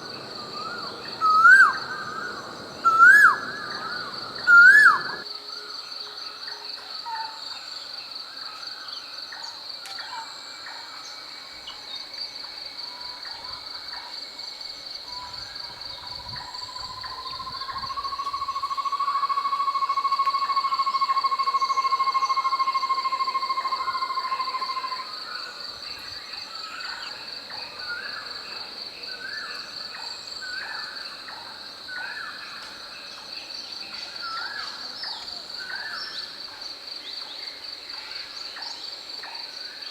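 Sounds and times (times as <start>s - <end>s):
bird calls: 0.0s - 5.2s
insects chirring: 0.0s - 7.2s, 7.9s - 39.9s.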